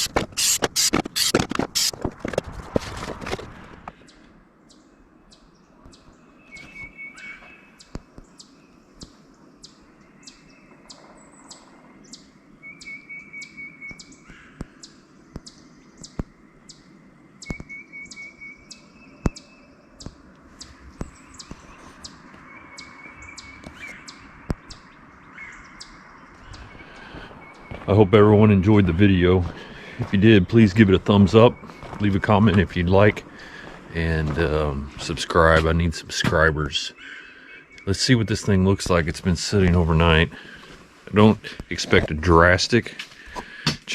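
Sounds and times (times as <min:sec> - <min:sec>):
bird singing a trill: 0:04.0 - 0:29.5, 0:30.2 - 0:33.1, 0:36.8 - 0:38.8.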